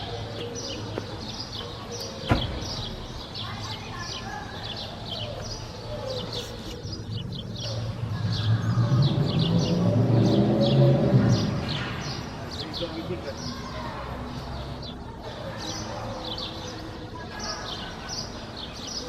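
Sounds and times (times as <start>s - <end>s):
small birds chirping: 0.0s - 19.0s
sharp knock: 2.2s - 2.8s.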